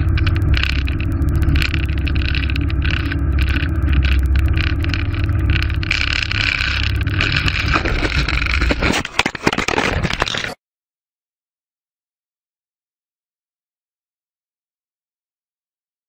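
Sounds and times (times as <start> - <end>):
vehicle engine and road drone: 0.0 - 10.3
sharp knocks and crackles: 0.0 - 10.6.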